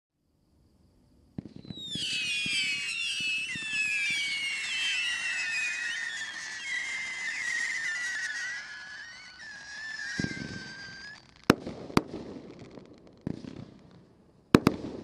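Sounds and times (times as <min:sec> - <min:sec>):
firework whistles falling in pitch: 0:01.4 - 0:12.7.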